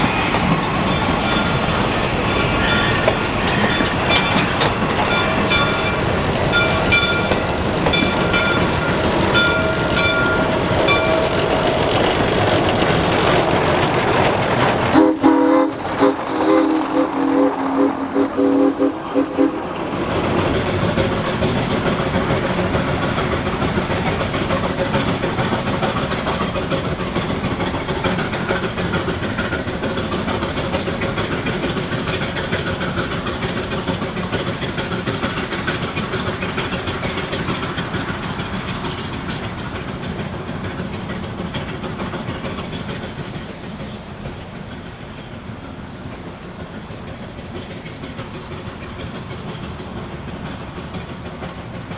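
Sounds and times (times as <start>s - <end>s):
steam hissing: 0.0s - 51.9s
steam train wheel clatter: 0.0s - 51.9s
train whistle: 14.9s - 19.8s.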